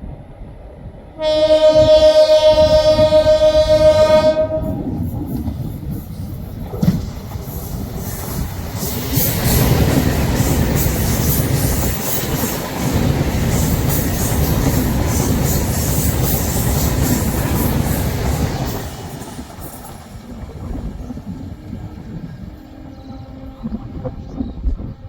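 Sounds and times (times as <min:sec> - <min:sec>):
train wheels clattering over rail joints: 0:04.9 - 0:21.3.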